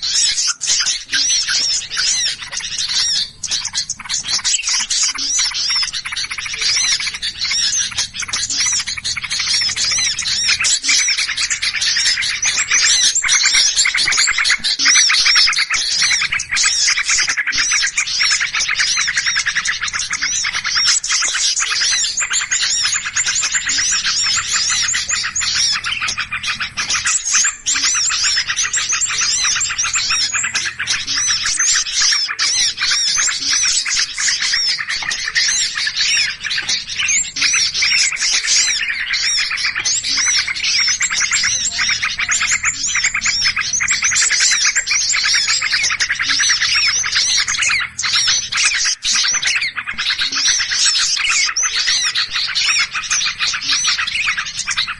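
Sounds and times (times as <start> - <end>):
small birds chirping and twittering: 0.0 - 54.9.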